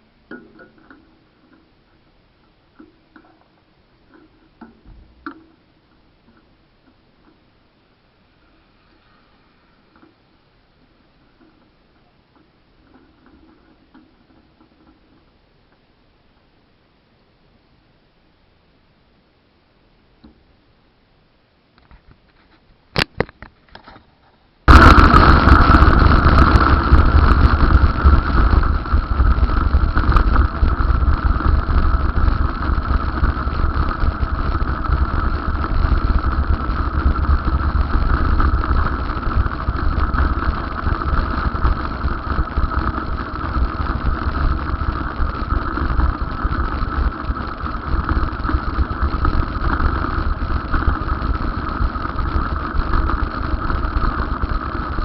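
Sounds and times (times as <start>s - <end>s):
vehicle running rumble: 24.7s - 55.0s.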